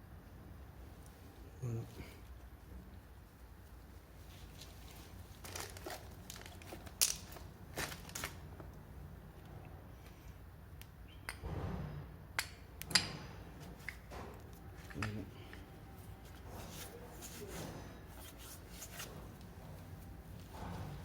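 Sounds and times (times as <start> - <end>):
rustling: 3.3 - 8.4, 13.6 - 21.0.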